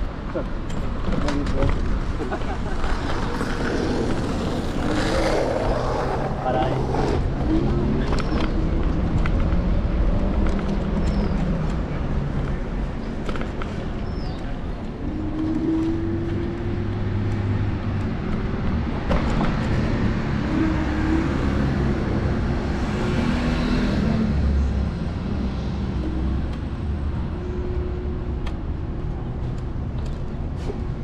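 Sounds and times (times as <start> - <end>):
road traffic rumble: 0.0 - 31.0
vehicle passing: 2.6 - 8.1.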